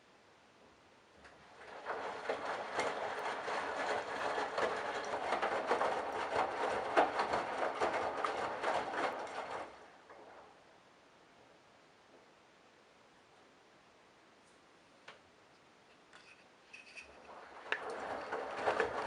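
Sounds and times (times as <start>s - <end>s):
laundry tumbling: 1.3s - 10.6s, 17.2s - 19.0s
washing machine drum turning: 1.6s - 10.3s, 17.2s - 19.0s.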